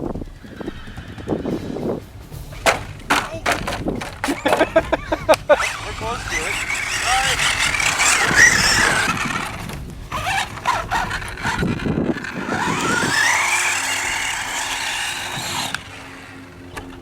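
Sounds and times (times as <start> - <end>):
knocks: 2.3 - 5.7
electric toy truck motor whining: 3.5 - 17.0.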